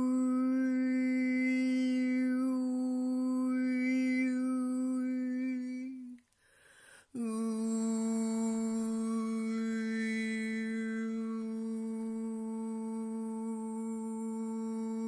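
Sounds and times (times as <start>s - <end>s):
person breathing in: 6.3s - 7.2s
person toning a long note: 7.2s - 15.0s.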